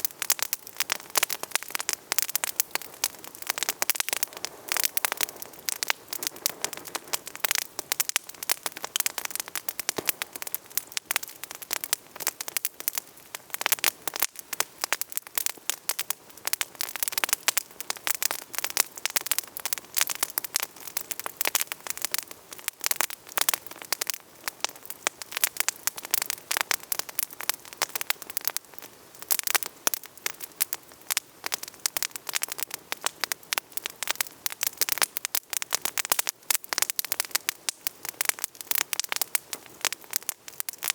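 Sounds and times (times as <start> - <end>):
soft fire hiss: 0.0 - 34.9
campfire crackling: 0.0 - 40.9.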